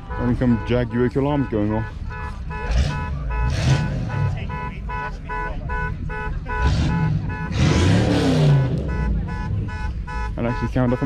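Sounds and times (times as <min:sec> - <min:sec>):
car alarm beeping: 0:00.0 - 0:11.0
car engine revving: 0:00.0 - 0:11.0.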